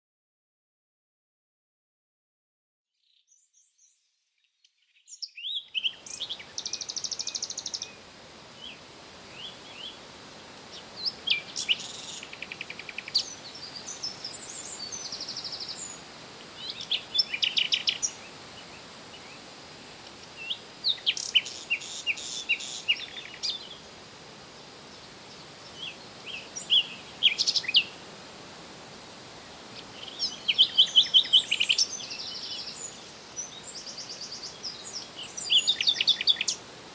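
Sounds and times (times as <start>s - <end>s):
songbird chirping and trilling: 3.0s - 8.0s, 10.7s - 19.4s, 20.2s - 23.8s, 25.0s - 28.0s, 29.7s - 36.7s
steady background hiss: 5.0s - 36.9s.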